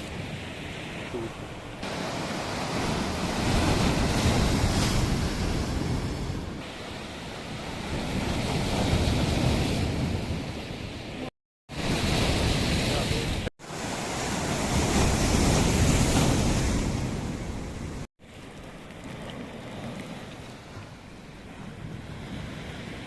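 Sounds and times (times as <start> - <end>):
sea waves washing ashore: 0.0 - 23.0
wind buffeting microphone: 2.6 - 6.7.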